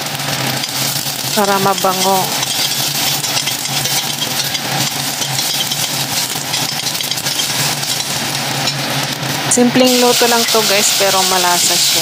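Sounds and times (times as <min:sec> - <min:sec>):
onion sizzling in oil: 0:00.0 - 0:12.0
metal spoon stirring in saucepan: 0:00.4 - 0:09.2.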